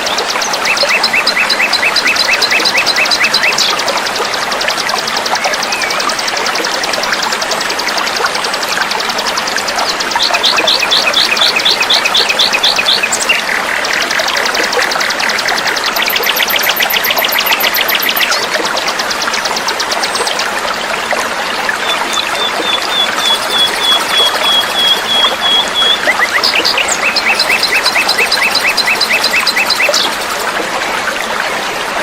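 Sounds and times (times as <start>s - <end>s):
songbirds chirping: 0.0s - 4.4s, 9.4s - 18.5s, 21.6s - 30.6s
water trickling: 0.0s - 32.0s.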